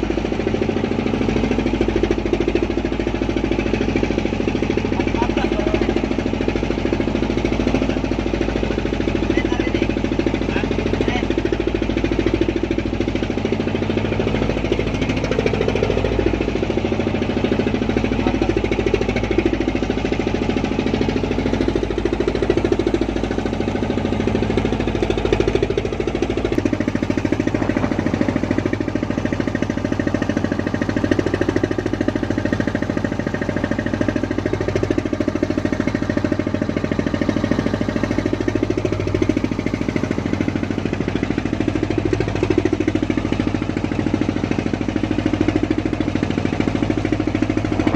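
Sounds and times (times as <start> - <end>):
boat engine running: 0.0 - 47.9.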